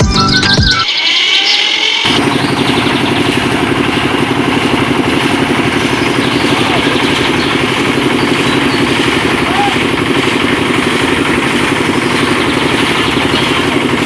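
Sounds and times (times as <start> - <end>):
music: 0.0 - 2.1
small engine running: 0.0 - 14.0.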